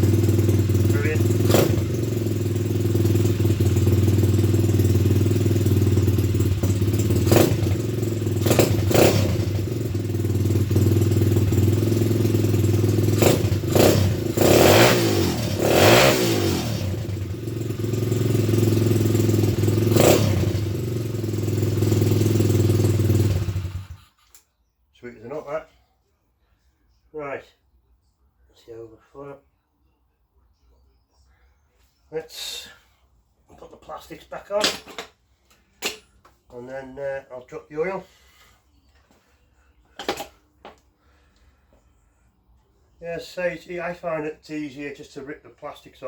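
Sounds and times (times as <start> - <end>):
pit bike engine idling and revving: 0.0 - 24.4.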